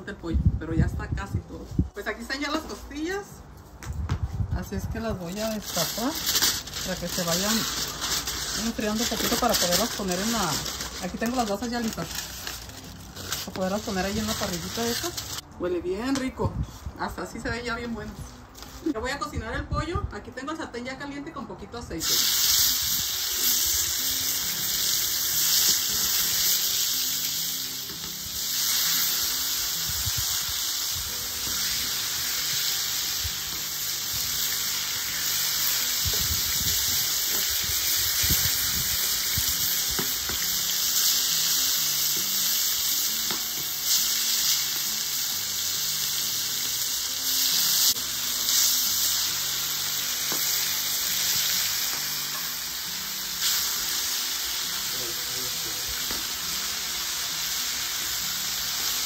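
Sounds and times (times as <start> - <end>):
soft music: 0.0 - 59.0
chicken sizzling in a pan: 5.7 - 15.4, 22.0 - 59.0.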